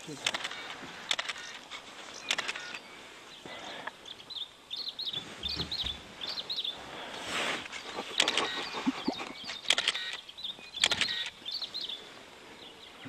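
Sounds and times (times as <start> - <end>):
bird chirping: 0.0 - 13.0
sharp click: 10.8 - 11.3.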